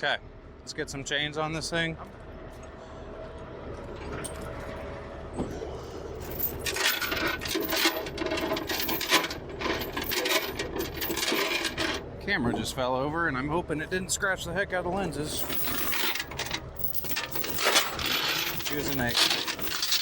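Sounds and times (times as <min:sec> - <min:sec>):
steady low hum: 0:00.0 - 0:20.0
steel chains clinking: 0:06.2 - 0:12.0, 0:15.2 - 0:20.0.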